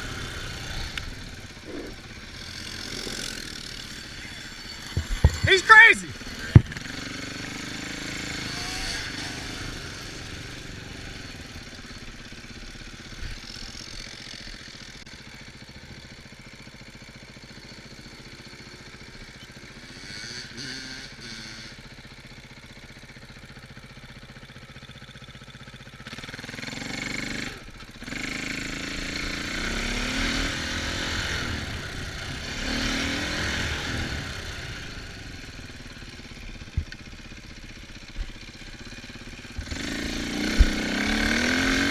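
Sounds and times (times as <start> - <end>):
off-road vehicle engines revving: 0.0 - 14.4, 19.2 - 22.3, 26.0 - 41.9.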